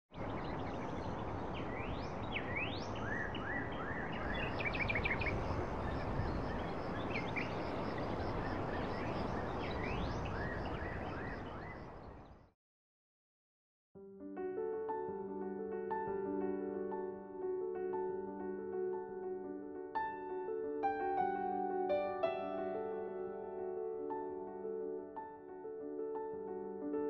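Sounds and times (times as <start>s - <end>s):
birds whistling and chirping: 0.4s - 11.8s.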